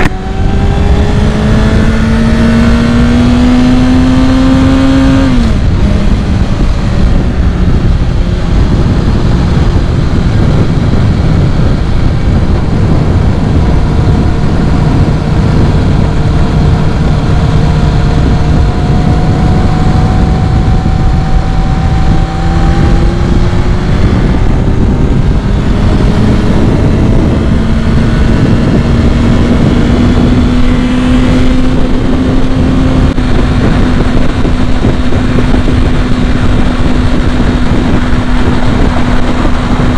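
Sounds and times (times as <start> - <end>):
motorcycle engine running: 0.0 - 39.9
wind rush: 0.0 - 39.9.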